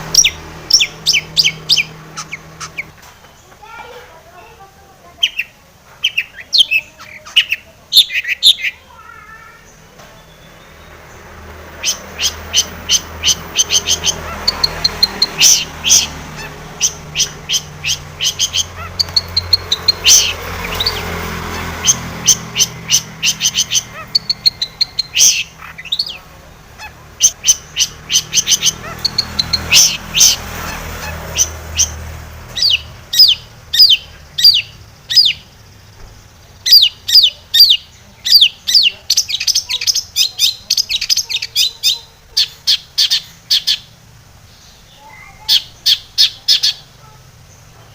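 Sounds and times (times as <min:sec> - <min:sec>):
shrike singing chattering notes: 0:00.0 - 0:03.5, 0:10.2 - 0:35.6.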